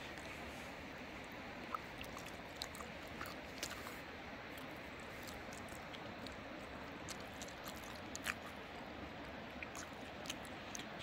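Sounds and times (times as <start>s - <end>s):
steady background hiss: 0.0s - 11.0s
mouth clicks while chewing: 1.7s - 4.0s, 4.6s - 6.4s, 7.0s - 8.6s, 9.6s - 11.0s.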